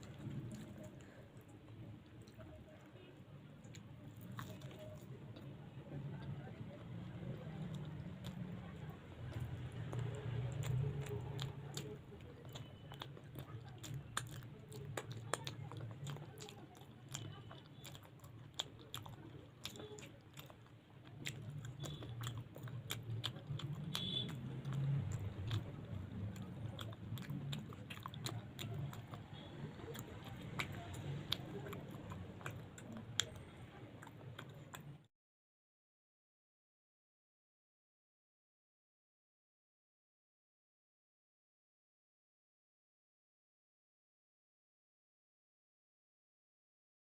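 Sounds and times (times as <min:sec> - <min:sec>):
person chewing and biting food: 0:00.0 - 0:02.8, 0:03.6 - 0:34.9.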